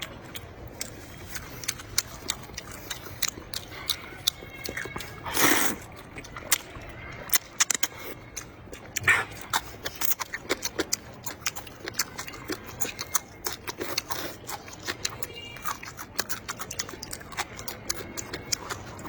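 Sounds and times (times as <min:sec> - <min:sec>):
chewing: 0:00.0 - 0:19.0
wet mouth clicks and smacks: 0:00.3 - 0:08.1
breathy slurp or sniff: 0:05.3 - 0:05.8.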